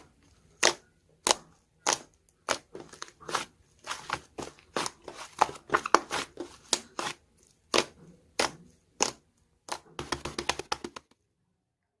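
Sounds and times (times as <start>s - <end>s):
sharp irregular taps: 7.7s - 11.2s.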